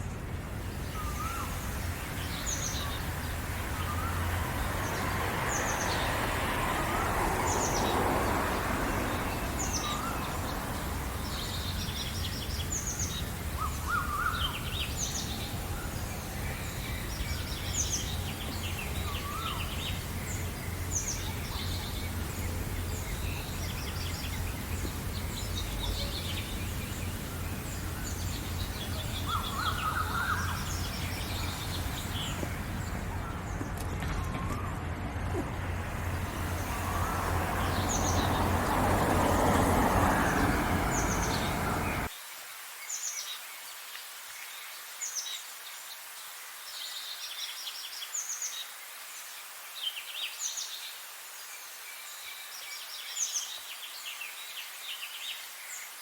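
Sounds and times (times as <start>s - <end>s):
rush of noise: 0.0s - 42.1s
songbirds chirping and singing: 0.0s - 42.1s.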